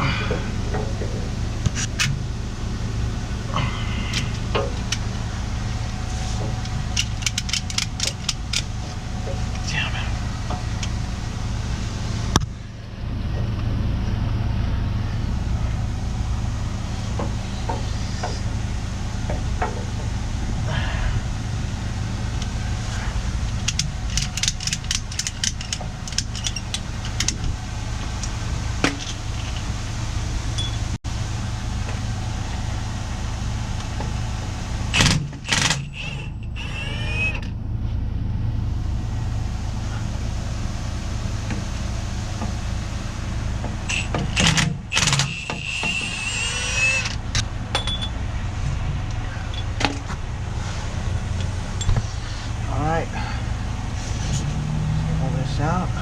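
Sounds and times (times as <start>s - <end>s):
metal clanking and scraping: 0.0s - 2.3s, 3.5s - 11.1s, 22.9s - 29.8s
truck engine idling: 0.0s - 56.0s
sharp metallic clicks: 6.6s - 8.8s, 23.5s - 27.5s, 34.9s - 37.5s, 43.9s - 48.2s.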